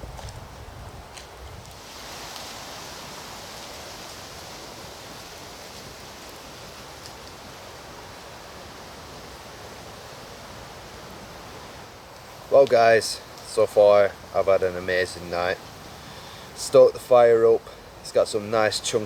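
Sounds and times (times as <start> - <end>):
campfire hissing: 0.0 - 19.0
faint ticks from fire: 1.1 - 2.6, 5.0 - 7.6, 12.0 - 13.6.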